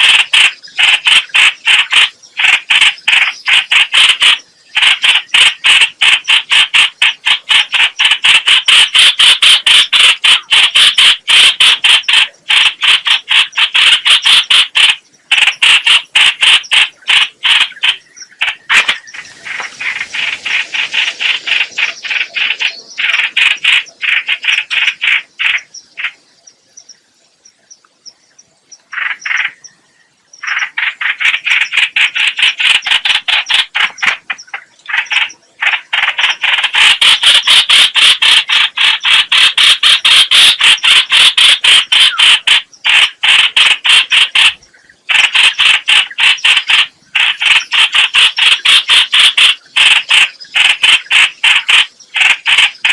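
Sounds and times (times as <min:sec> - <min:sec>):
bird harsh chattering calls: 0:00.0 - 0:26.9, 0:28.8 - 0:52.9.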